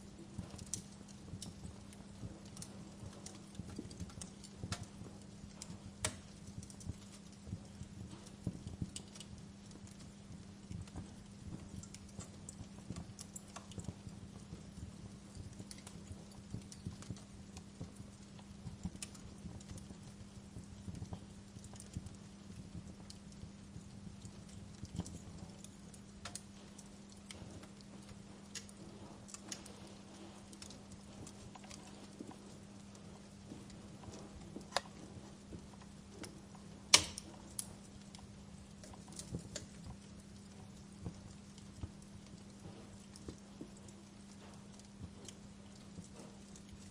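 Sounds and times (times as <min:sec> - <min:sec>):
fire crackling and popping: 0:00.0 - 0:46.9
steady low hum: 0:00.0 - 0:46.9.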